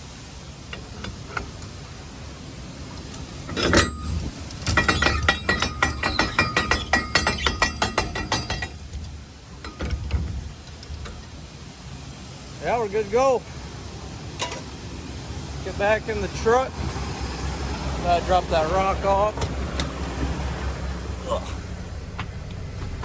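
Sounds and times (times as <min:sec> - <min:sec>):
ratchet crank clicking: 0:03.0 - 0:09.1
sharp metal clank: 0:03.5 - 0:08.9.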